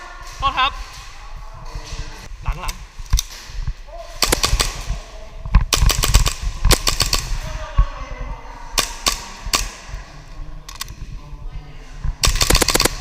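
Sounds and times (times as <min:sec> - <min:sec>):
airsoft pistols firing: 0:04.2 - 0:05.0, 0:05.6 - 0:07.4, 0:12.2 - 0:13.0.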